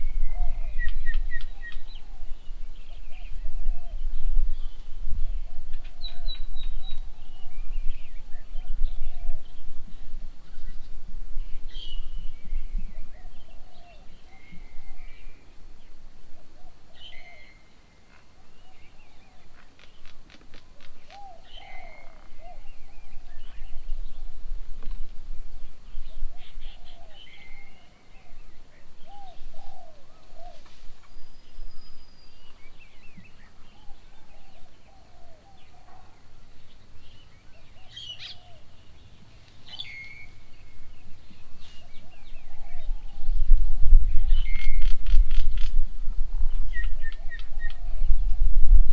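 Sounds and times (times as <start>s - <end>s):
birds whistling and chirping: 0.0s - 9.7s, 25.9s - 45.7s, 46.5s - 48.9s
wind rumble on microphone: 0.0s - 48.9s.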